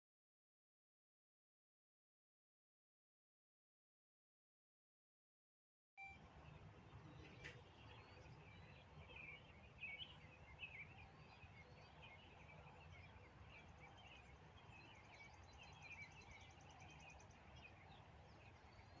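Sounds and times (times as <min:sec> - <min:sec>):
swallows twittering: 0:06.3 - 0:19.0.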